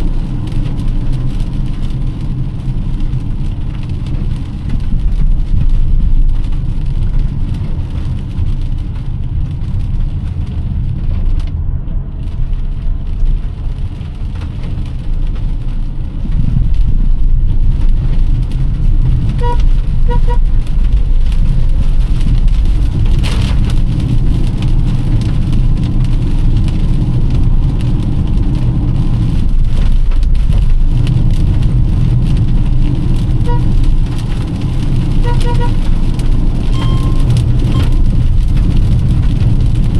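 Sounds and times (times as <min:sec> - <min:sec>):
car engine and tyre rumble: 0:00.0 - 0:39.9
rain hissing: 0:00.0 - 0:39.9
short high beeps: 0:36.8 - 0:38.1.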